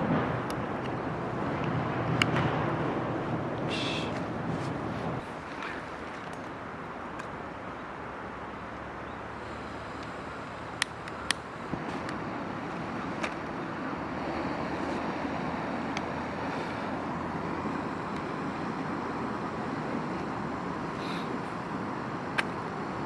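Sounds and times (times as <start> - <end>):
fire crackling pops: 0.0 - 5.3, 9.6 - 16.6
wood fire rushing: 0.0 - 6.4.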